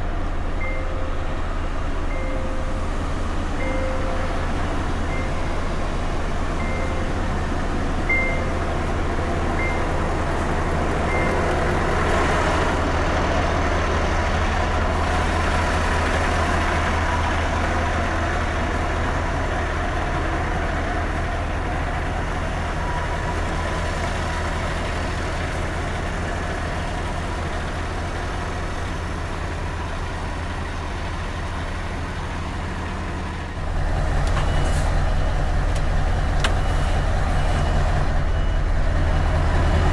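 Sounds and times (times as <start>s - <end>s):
truck engine rumbling: 0.0s - 39.9s
short beeps: 6.6s - 7.5s, 8.1s - 9.0s, 9.6s - 10.1s, 11.0s - 11.8s, 34.2s - 39.1s.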